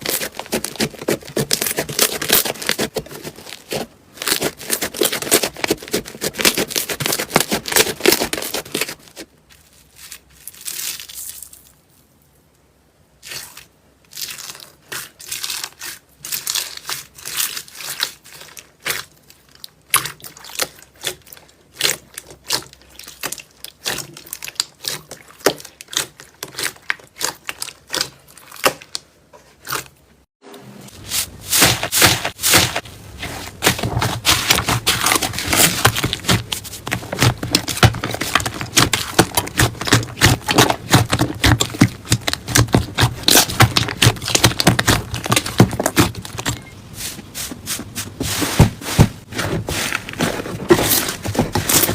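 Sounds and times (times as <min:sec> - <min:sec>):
slime crackling and popping: 0:33.6 - 0:46.7.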